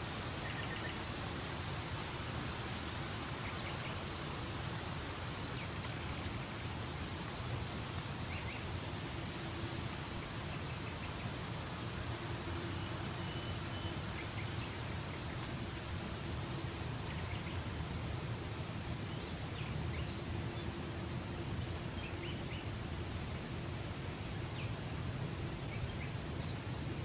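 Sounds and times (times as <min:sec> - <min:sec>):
faint hum: 0:00.0 - 0:27.0
bird chirps: 0:12.8 - 0:14.6.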